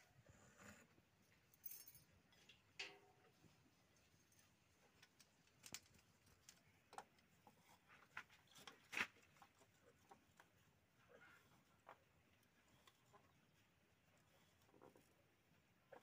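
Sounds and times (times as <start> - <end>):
faint clicks and taps: 4.9 - 10.6.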